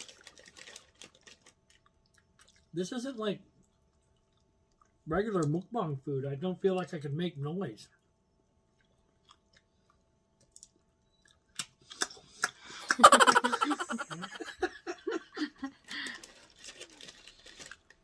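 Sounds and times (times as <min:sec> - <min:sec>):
chewing and crunching mouth noises: 0:00.0 - 0:02.8, 0:03.6 - 0:05.6, 0:08.0 - 0:12.8
people laughing and giggling: 0:12.8 - 0:16.0.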